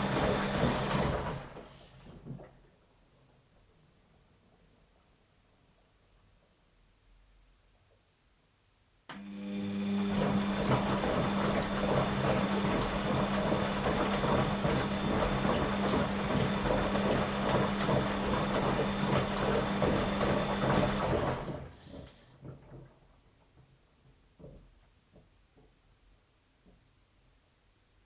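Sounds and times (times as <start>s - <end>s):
washing machine running: 0.0s - 2.5s, 9.2s - 23.0s.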